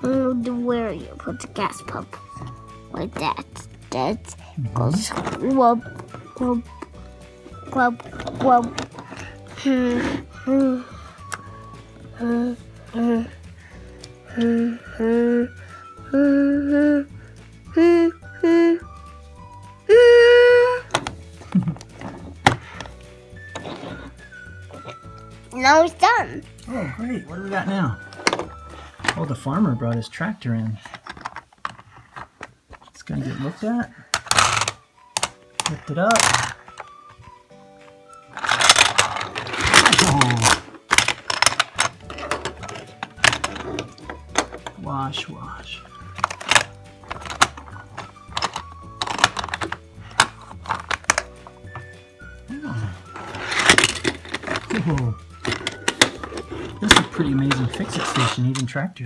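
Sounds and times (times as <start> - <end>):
plastic toy parts clicking: 34.1 - 36.9, 38.2 - 44.8, 46.1 - 51.5, 53.3 - 58.7.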